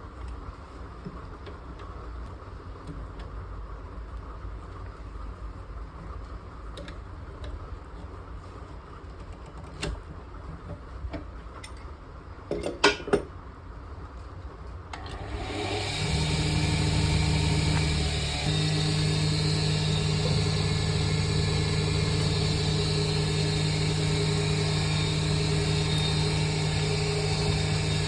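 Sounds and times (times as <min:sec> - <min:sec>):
lathe motor humming: 0:15.0 - 0:28.0.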